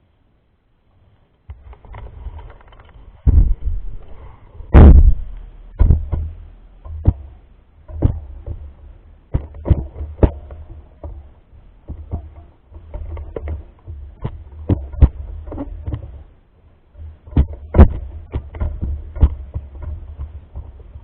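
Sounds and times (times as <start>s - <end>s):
bike knocks and rattles: 1.5s - 21.0s
low rumble: 1.6s - 16.4s.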